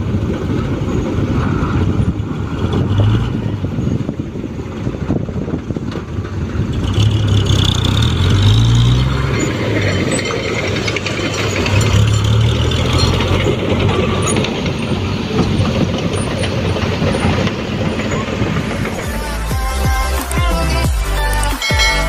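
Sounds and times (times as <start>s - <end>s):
diesel engine hum: 0.0s - 22.0s
mechanical clatter: 4.9s - 20.4s
electronic music: 18.7s - 22.0s.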